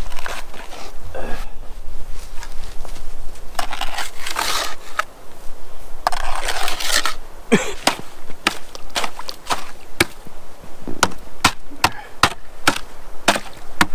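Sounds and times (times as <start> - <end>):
ice crust crunching: 0.0 - 1.0, 2.2 - 5.1, 6.0 - 10.3, 11.5 - 13.9
sharp knocks: 10.8 - 13.9.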